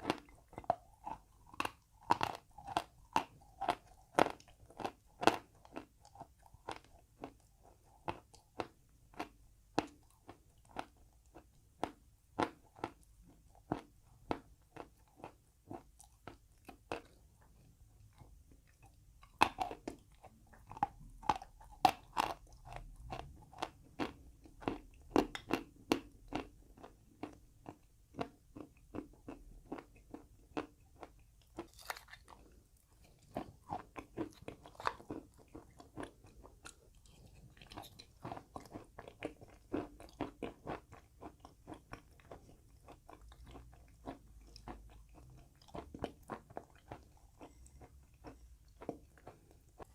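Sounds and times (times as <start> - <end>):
chewing chalk crunches: 0.0 - 17.2, 18.7 - 49.9.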